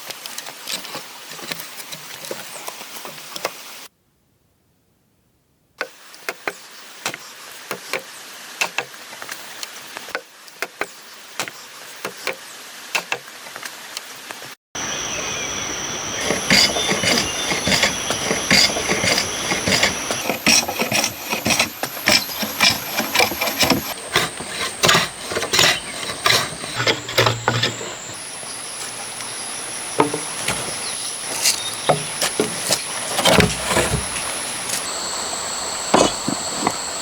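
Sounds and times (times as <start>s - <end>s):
steady high whine: 14.8s - 37.0s.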